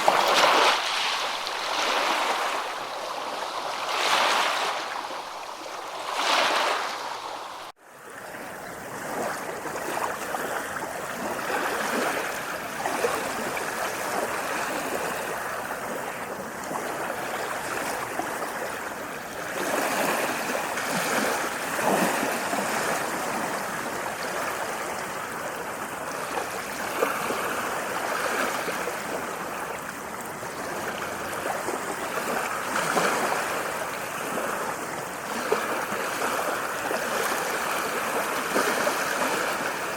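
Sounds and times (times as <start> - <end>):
ocean waves washing: 0.0 - 7.8, 8.4 - 39.9.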